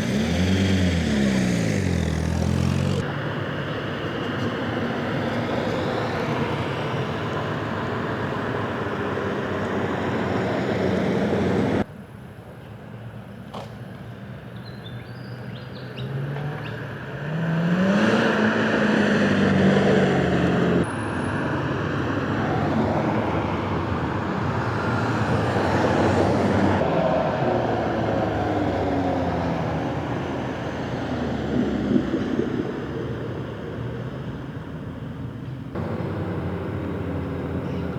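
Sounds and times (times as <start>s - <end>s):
engine accelerating: 0.0s - 3.1s, 35.8s - 37.9s
car engines running: 0.0s - 11.9s, 16.2s - 37.9s
tyre and road noise: 0.0s - 11.9s, 16.0s - 37.9s.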